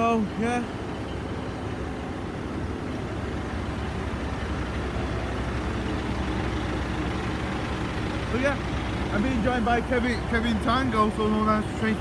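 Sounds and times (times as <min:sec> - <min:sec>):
diesel engine idling: 0:01.8 - 0:12.0.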